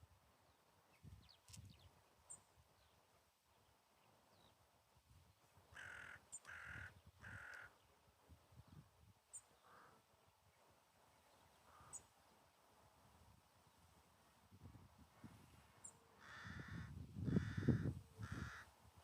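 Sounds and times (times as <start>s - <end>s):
crow cawing: 5.7s - 7.8s, 9.6s - 10.0s, 16.2s - 18.7s.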